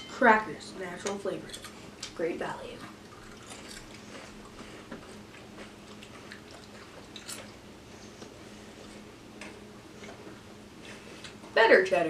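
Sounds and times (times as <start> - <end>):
people crunching crackers: 3.0 - 7.6.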